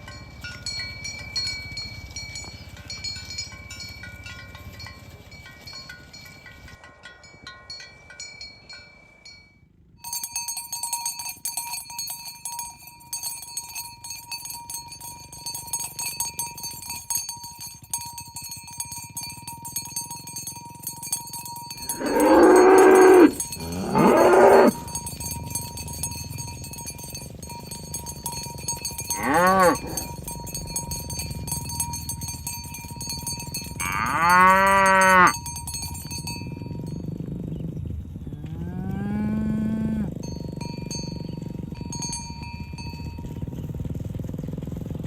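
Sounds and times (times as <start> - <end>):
cow mooing: 21.8 - 25.0, 29.1 - 30.2, 33.8 - 35.4, 38.3 - 40.2.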